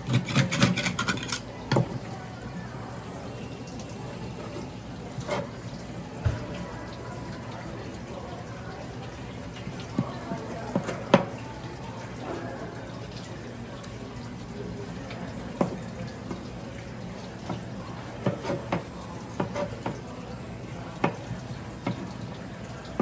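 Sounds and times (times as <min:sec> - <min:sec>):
background murmur: 0:00.0 - 0:23.0.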